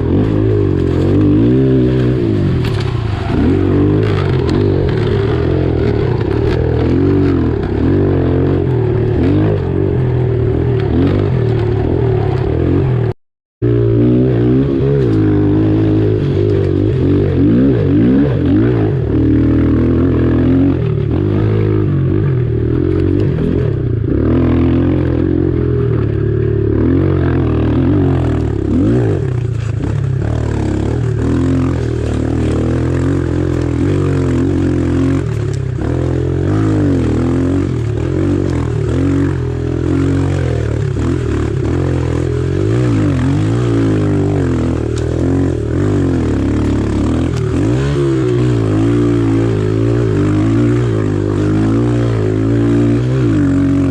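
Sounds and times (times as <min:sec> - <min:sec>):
pit bike engine revving: 0:00.0 - 0:53.9.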